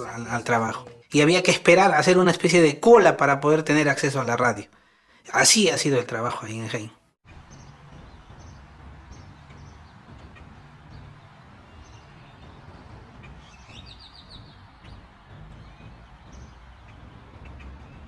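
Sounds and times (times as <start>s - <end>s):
small birds chirping: 7.2s - 18.0s
steady low rumble: 7.3s - 18.0s.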